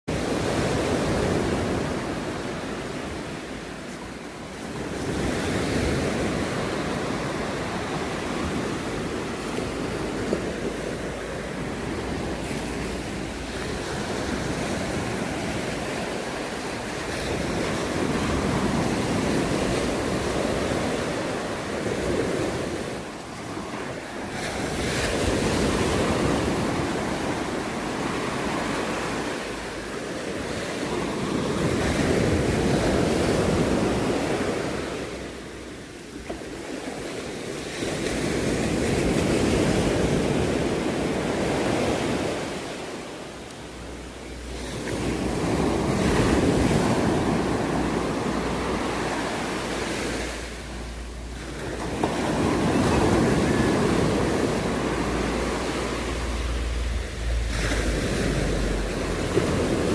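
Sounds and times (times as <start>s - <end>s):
sea waves breaking on beach: 0.1s - 59.9s
wind rumbling on microphone: 36.6s - 59.9s.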